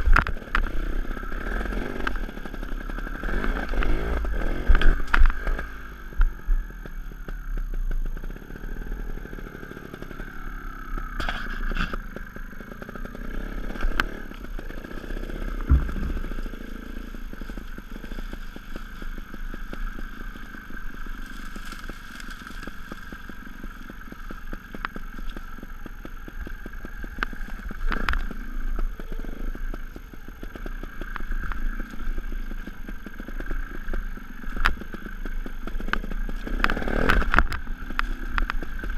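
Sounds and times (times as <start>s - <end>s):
motorcycle engine revving: 0.0s - 38.9s
sharp knocks and clatter: 15.5s - 16.6s.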